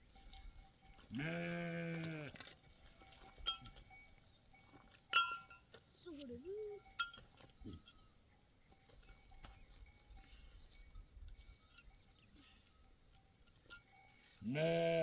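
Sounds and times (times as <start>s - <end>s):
animal bells clinking: 0.0s - 15.0s
wavering bleat: 1.1s - 2.4s, 14.4s - 15.0s.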